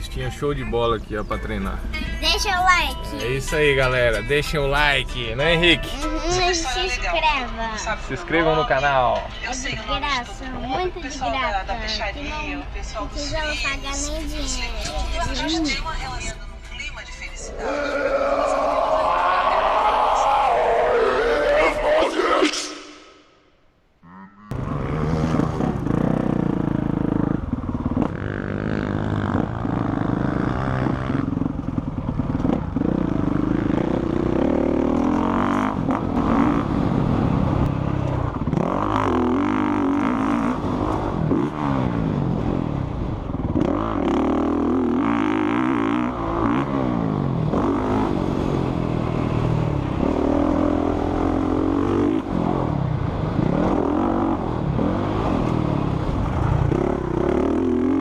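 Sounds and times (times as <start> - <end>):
motocross bike engine revving: 24.1 - 58.0.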